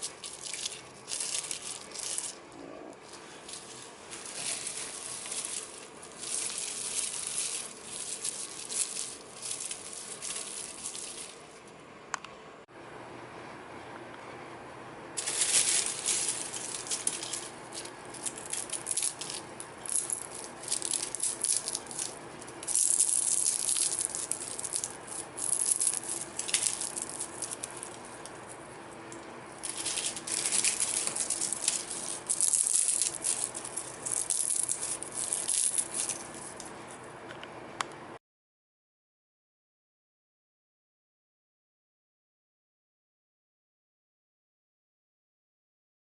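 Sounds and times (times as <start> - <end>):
dried cabbage rustling: 0.0 - 11.7, 15.2 - 37.0
faint steady hum: 0.0 - 38.2.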